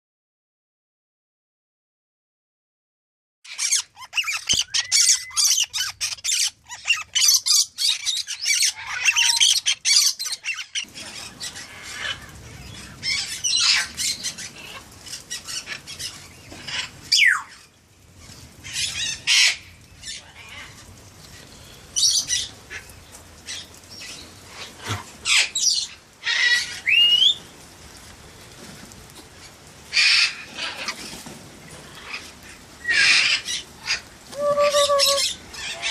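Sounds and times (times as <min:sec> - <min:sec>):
parrots squawking: 0:03.5 - 0:12.4, 0:32.0 - 0:35.9
rain hiss: 0:03.5 - 0:35.9
rising whistles: 0:34.3 - 0:35.3.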